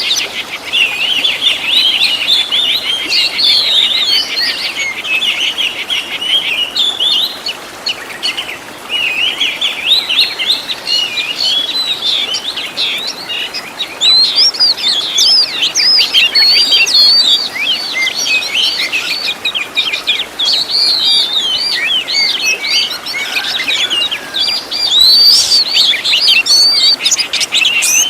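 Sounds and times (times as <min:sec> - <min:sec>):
bird singing chirps and trills: 0:00.0 - 0:28.0.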